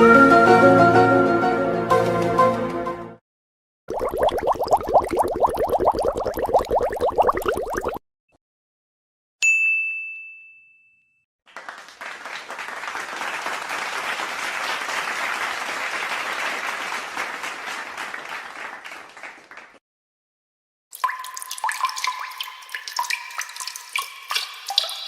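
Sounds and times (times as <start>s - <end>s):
group applauding: 11.5s - 19.8s.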